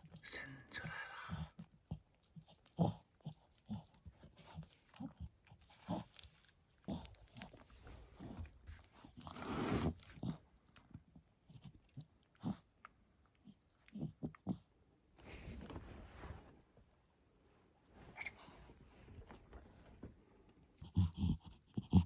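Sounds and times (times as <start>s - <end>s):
dog licking and chewing: 1.3s - 9.2s, 10.0s - 14.7s.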